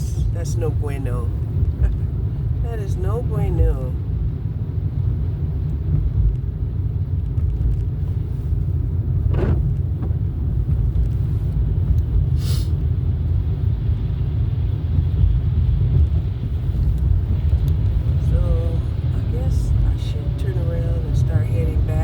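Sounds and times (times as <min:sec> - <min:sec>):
car engine and tyres rumbling: 0:00.0 - 0:22.0
brief hiss: 0:12.3 - 0:12.8.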